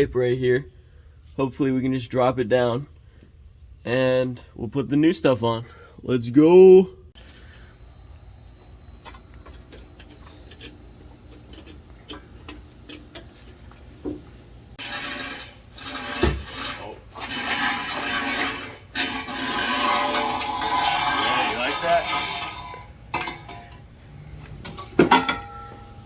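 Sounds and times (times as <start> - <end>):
metal scraping and clanking: 9.0 - 14.1, 14.7 - 26.0.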